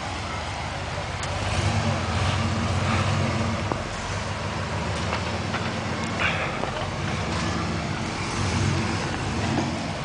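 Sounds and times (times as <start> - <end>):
truck engine at low revs: 0.0 - 10.0.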